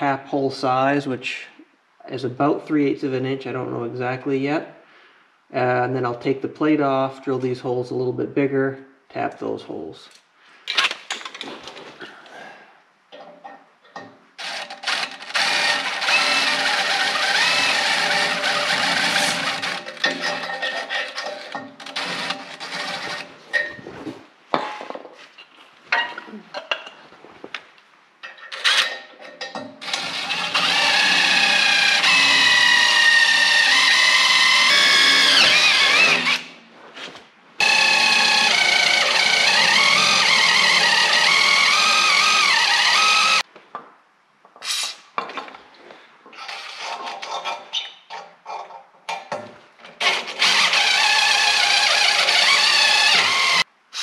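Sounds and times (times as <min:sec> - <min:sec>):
electric drill boring steel: 0:14.4 - 0:23.3, 0:29.8 - 0:36.5, 0:37.6 - 0:43.4, 0:50.0 - 0:54.0.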